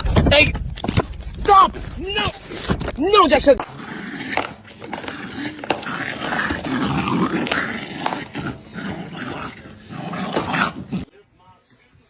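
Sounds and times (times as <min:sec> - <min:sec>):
dog growling: 0:03.6 - 0:11.1.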